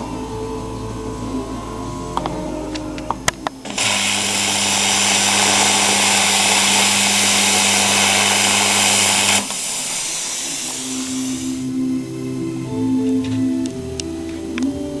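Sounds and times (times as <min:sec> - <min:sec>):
low electrical hum: 0:00.0 - 0:15.0
plasma cutter torch hissing: 0:03.7 - 0:11.7.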